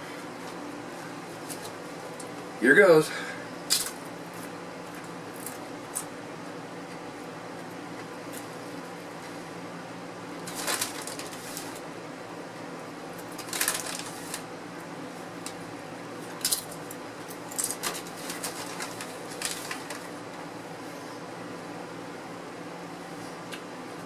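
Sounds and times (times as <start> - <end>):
chips crunching: 3.7 - 6.1, 10.4 - 11.9, 13.1 - 14.5, 16.2 - 20.2.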